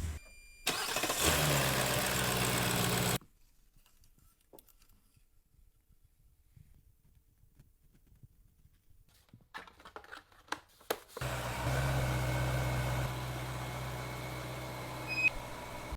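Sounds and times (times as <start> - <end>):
car engine starting and idling: 0.0 - 3.2, 11.2 - 15.9.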